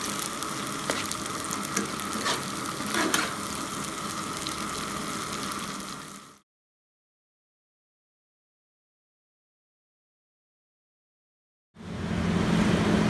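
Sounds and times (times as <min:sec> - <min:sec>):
fish sizzling in hot oil: 0:00.0 - 0:06.4.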